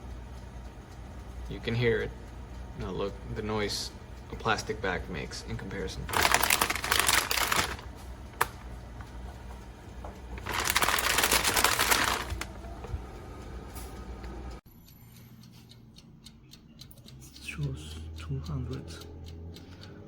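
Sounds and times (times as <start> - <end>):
toaster oven fan humming: 0.0 - 20.0
plastic bag crinkling: 6.1 - 8.5, 10.4 - 12.5.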